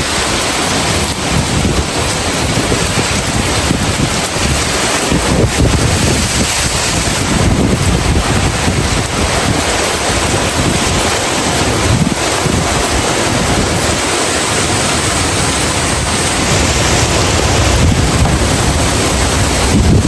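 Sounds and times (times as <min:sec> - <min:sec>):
heavy rain pouring: 0:00.0 - 0:20.0
wind buffeting microphone: 0:00.0 - 0:20.0.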